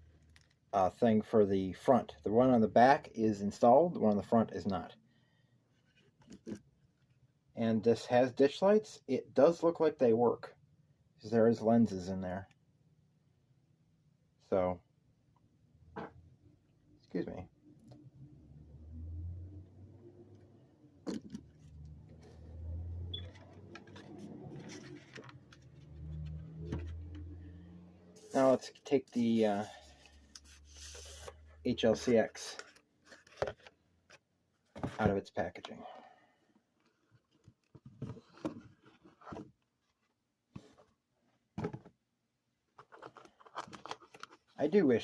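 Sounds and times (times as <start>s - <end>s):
packaging rustling and scraping: 23.2s - 27.2s, 42.8s - 44.6s.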